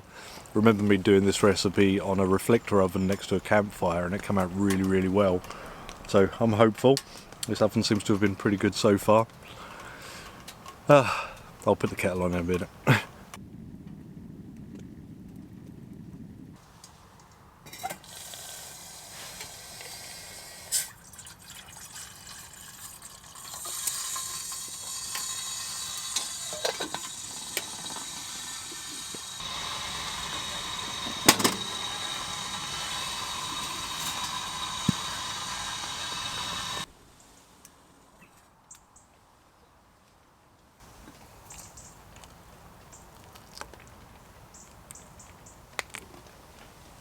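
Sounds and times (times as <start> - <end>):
water pouring into a kettle: 18.0 - 20.0, 20.7 - 36.9.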